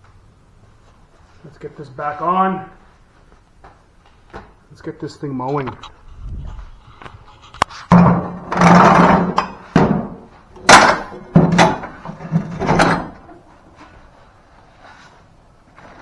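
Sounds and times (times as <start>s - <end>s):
metal clanks and scrapes: 5.8s - 14.0s.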